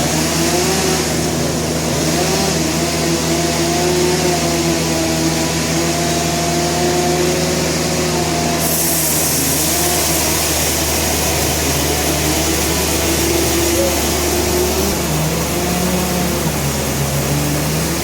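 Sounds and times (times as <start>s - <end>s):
wavering machine whine: 6.9s - 18.0s
machinery hiss: 8.6s - 18.0s
machinery engine hum: 9.4s - 18.0s.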